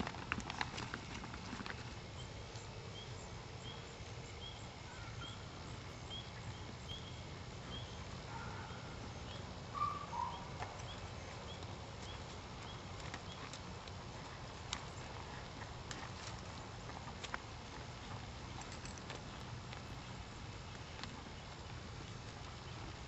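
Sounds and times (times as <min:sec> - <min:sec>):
steady low background noise: 0:00.0 - 0:23.0.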